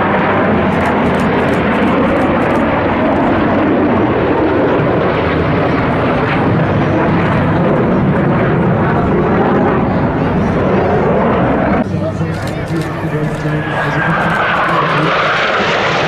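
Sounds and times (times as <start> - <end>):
jet engine noise: 0.0 - 16.0.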